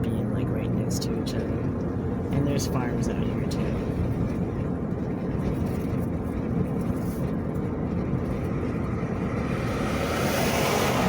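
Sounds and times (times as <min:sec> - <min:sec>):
car road and engine noise: 0:00.0 - 0:11.0
vehicle passing: 0:08.0 - 0:11.0.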